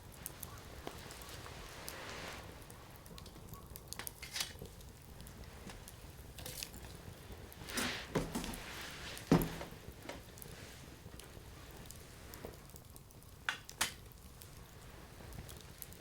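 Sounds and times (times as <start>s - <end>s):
fire hissing flare-up: 0.0s - 3.2s, 4.1s - 12.6s
firewood crackling: 0.0s - 16.0s.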